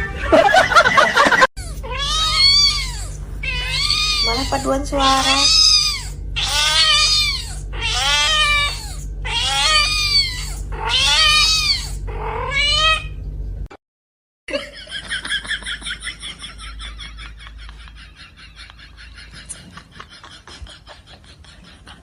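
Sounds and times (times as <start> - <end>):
cat meowing loudly: 1.6 - 13.1.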